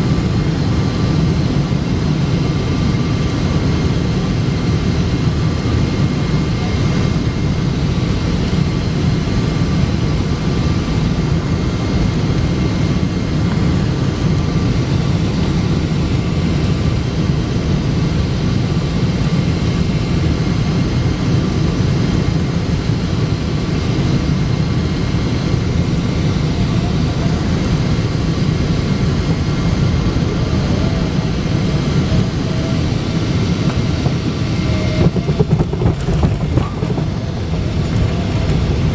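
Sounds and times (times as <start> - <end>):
jet engines and airflow rumble: 0.0 - 38.9.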